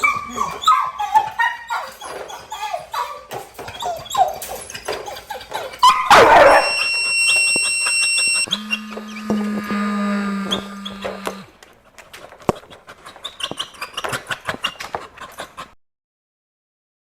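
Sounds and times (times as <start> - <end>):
dog yipping barking and whining: 0.0 - 9.0
high-pitched tone: 6.4 - 11.5.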